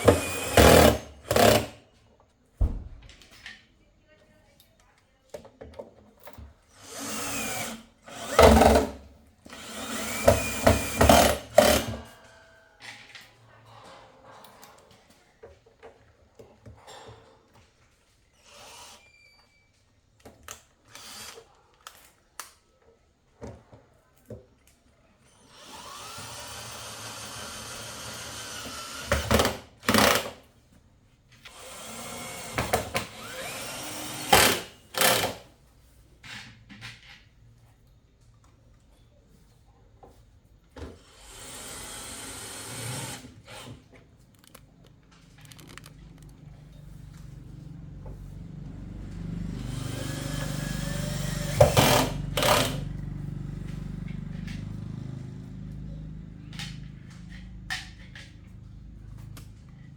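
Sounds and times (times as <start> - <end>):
small power tool running: 0.0 - 1.8, 6.8 - 12.1, 20.9 - 21.4, 25.4 - 30.3, 31.5 - 35.4, 41.0 - 43.8, 44.4 - 44.6, 48.3 - 54.7
handling clicks and knocks: 44.2 - 47.5.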